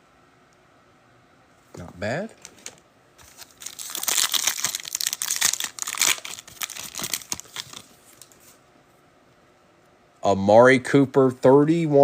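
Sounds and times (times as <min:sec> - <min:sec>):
plastic wrapper tearing and crinkling: 0:02.5 - 0:08.4.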